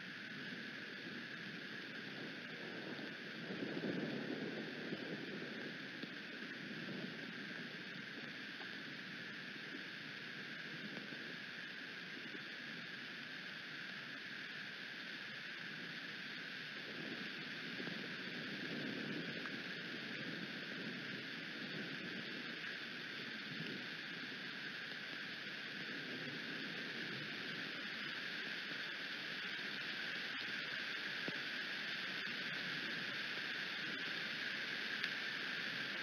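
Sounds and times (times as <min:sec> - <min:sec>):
rain hissing: 0:00.0 - 0:36.0
gusty wind rumbles: 0:00.6 - 0:08.5.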